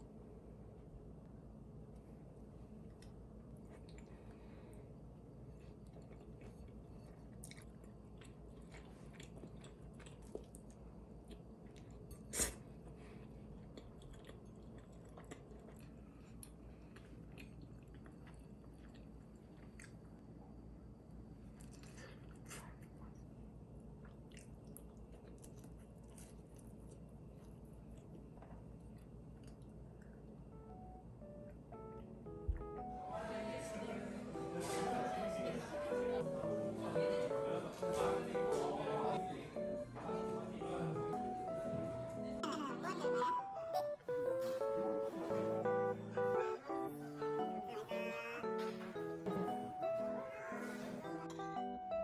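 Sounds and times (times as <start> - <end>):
low room hum: 0.0 - 52.0
chewing and biting food: 5.7 - 20.2, 24.0 - 30.2.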